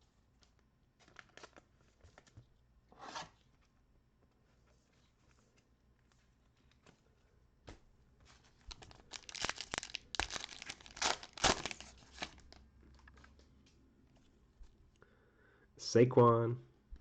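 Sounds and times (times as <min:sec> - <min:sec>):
wrapper tearing and crinkling: 0:08.7 - 0:12.6.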